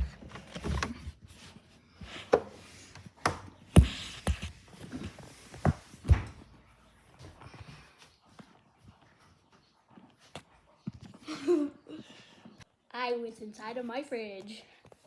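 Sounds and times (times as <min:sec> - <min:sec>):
objects knocking and thumping: 0:00.0 - 0:06.6.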